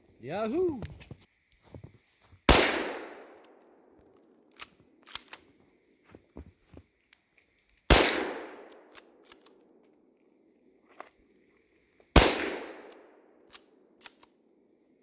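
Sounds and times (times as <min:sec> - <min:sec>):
rifle shot echoing: 0:02.5 - 0:03.4, 0:07.9 - 0:08.9, 0:12.2 - 0:13.2
small clicks and knocks: 0:08.7 - 0:10.0, 0:12.9 - 0:14.4.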